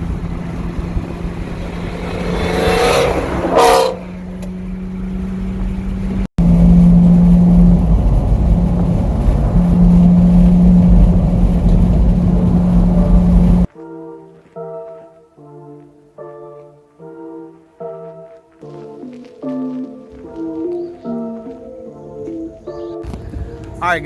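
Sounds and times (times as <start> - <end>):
car accelerating: 0.0 - 13.7
car engine running: 0.0 - 13.7.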